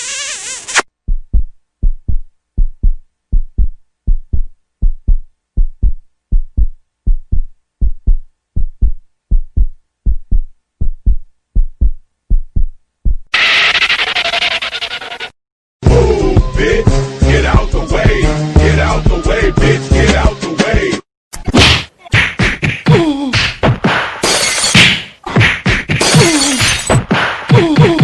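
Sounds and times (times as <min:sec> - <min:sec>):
heartbeat double thump: 0:01.0 - 0:13.3.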